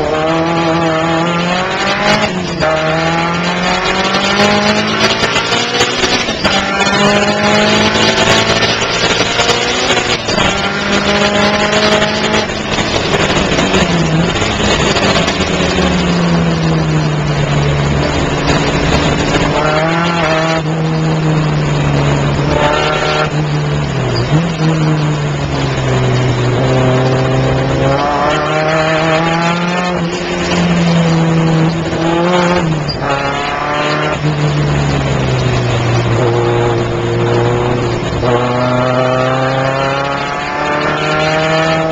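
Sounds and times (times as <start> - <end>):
car engine revving: 0.0 - 41.9
road noise hiss: 1.9 - 41.0.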